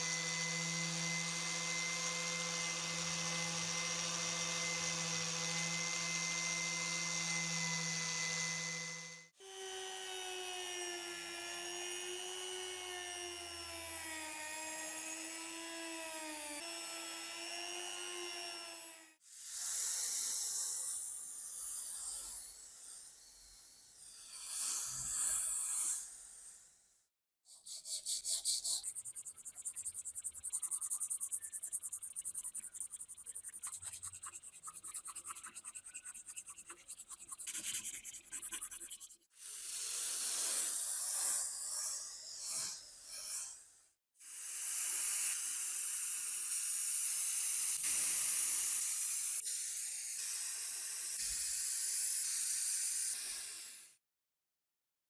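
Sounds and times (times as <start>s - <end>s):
rasping strokes on metal: 0.0s - 26.6s, 27.5s - 43.8s.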